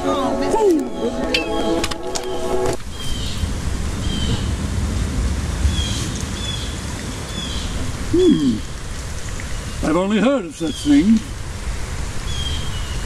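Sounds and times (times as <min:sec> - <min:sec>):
wind rumble on microphone: 0:02.6 - 0:09.9
bird chirping: 0:02.9 - 0:04.6, 0:05.7 - 0:07.8, 0:12.3 - 0:13.0.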